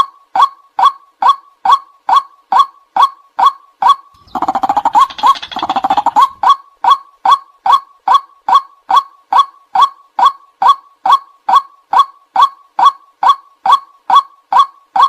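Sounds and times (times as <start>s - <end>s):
bird calling sharp kwak notes: 4.2s - 6.5s.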